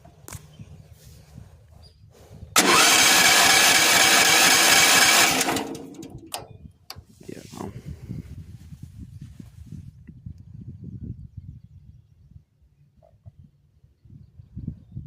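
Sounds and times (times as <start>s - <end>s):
engine cranking by starter: 2.6s - 6.5s.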